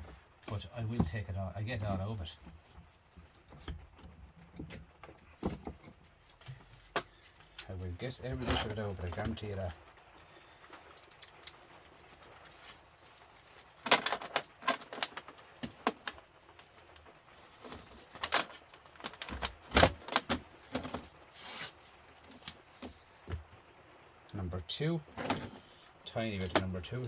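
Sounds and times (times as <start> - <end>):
metal scrap clinking and clattering: 13.8 - 16.2.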